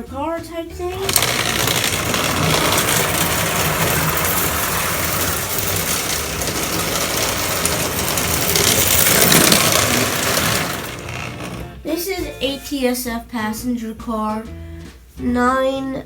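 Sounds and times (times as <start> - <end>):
toy train motor whir: 0.8 - 11.8
toy train wheel clatter: 0.8 - 11.8.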